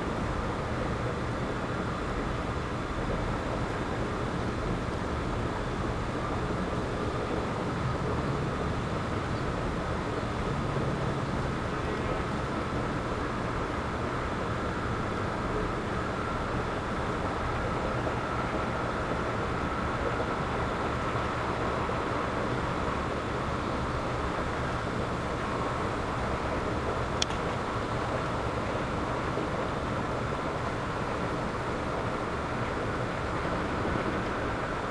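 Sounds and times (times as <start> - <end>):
wind with low rumble: 0.0 - 34.9
sharp click: 27.2 - 27.5.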